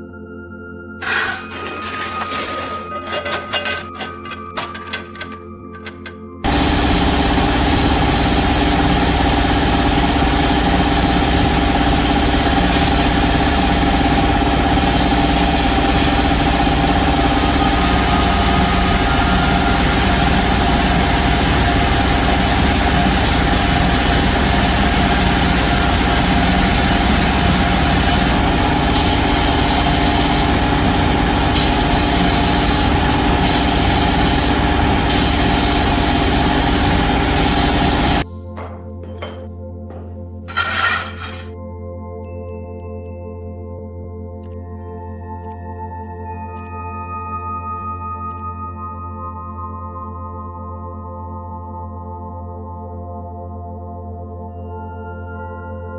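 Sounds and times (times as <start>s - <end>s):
power tool motor humming: 6.5s - 38.2s.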